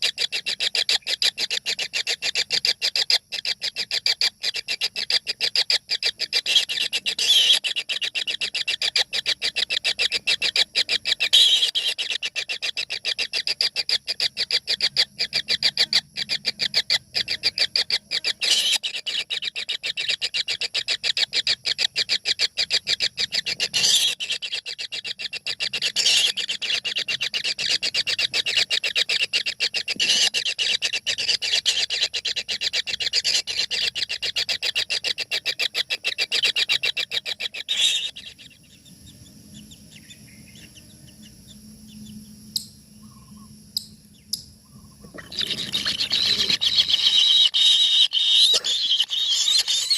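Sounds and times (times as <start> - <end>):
nestlings begging chatter: 0.0 - 49.9.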